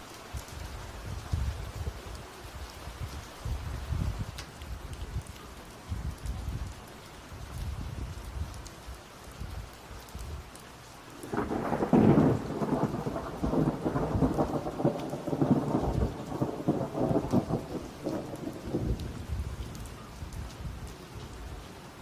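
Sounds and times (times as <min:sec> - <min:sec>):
steady rain: 0:00.0 - 0:22.0
thunder rumbling and crackling: 0:11.1 - 0:21.6.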